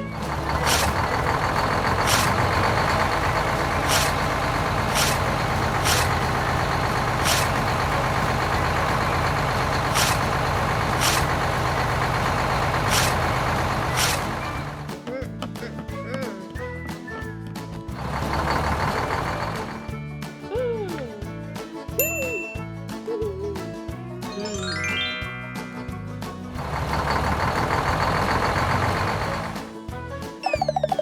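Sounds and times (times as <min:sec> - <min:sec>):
heavy vehicle engine running: 0:00.0 - 0:14.9, 0:18.0 - 0:19.9, 0:26.5 - 0:29.6.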